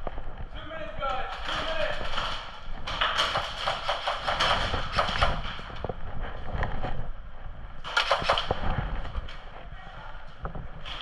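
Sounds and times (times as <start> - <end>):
airsoft guns firing: 1.3 - 5.7, 7.8 - 8.7.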